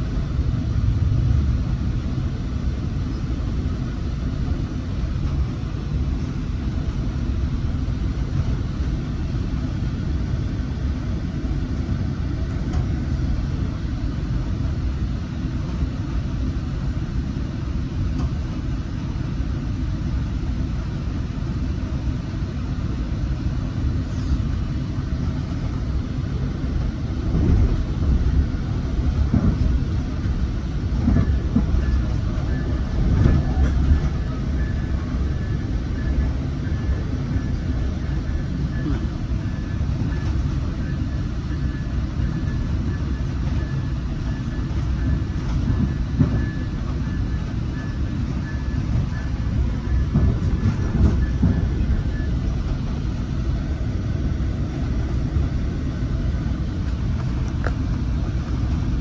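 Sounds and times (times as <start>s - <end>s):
train rumbling on track: 0.0s - 59.0s.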